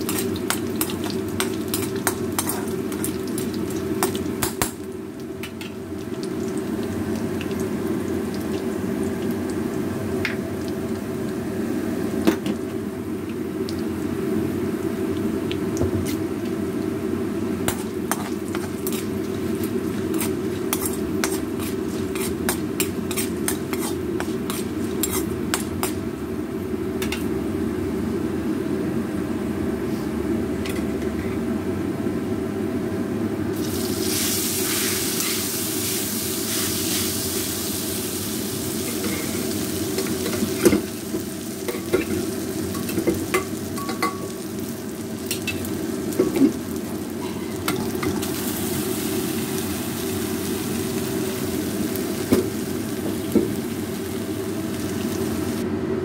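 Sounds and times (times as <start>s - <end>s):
food crackling in hot oil: 0.0s - 27.4s, 33.6s - 55.6s
spatula scraping a pan: 18.1s - 19.1s, 20.0s - 26.0s
loud sizzling hiss: 33.6s - 55.6s.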